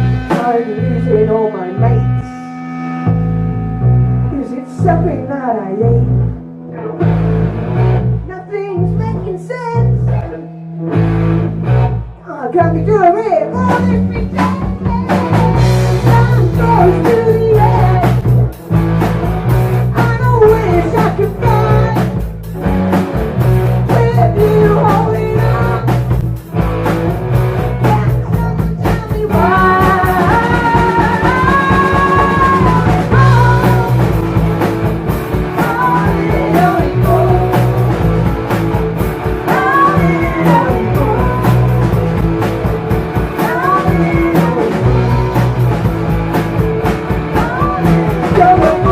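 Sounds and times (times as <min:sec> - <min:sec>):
live rock band playing: 0:00.0 - 0:48.9
bending melody line: 0:12.8 - 0:48.9.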